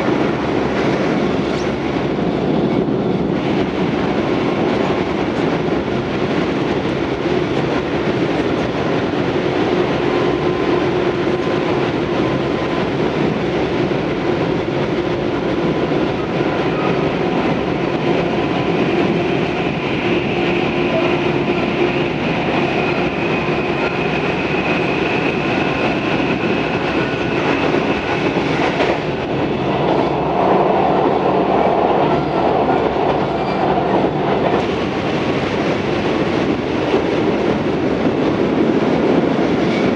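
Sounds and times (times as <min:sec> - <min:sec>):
clickety-clack over rail joints: 0:00.0 - 0:39.9
train wheels rumbling on rail: 0:00.0 - 0:39.9.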